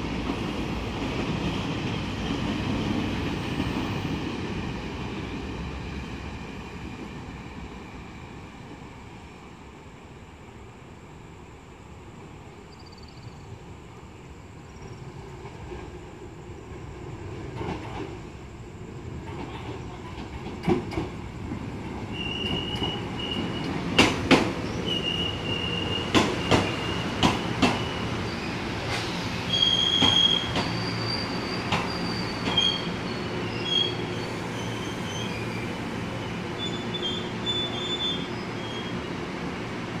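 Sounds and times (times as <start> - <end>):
train rumbling: 0.0 - 12.7, 13.3 - 40.0
wheel and brake squeals: 22.1 - 23.8, 24.6 - 35.8, 36.6 - 39.1.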